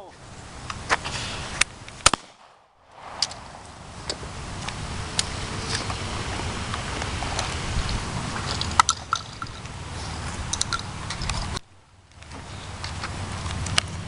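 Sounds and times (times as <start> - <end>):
steady crackling noise: 0.2 - 14.0
sharp clicks: 1.6 - 5.3
loud crack: 1.9 - 5.4.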